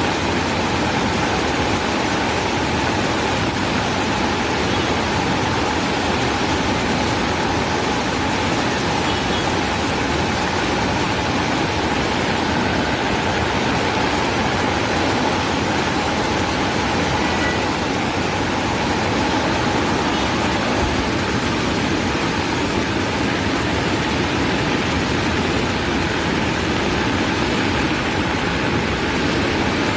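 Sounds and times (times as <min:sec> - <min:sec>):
floodwater rushing in river: 0:00.0 - 0:29.9.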